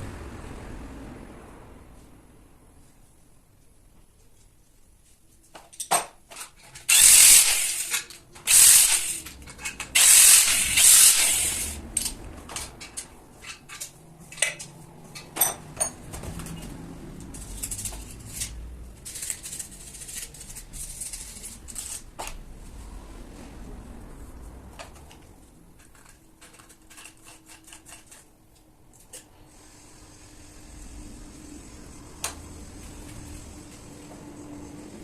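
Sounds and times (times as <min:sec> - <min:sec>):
loud hissing bursts: 0:06.9 - 0:09.3, 0:10.0 - 0:11.8.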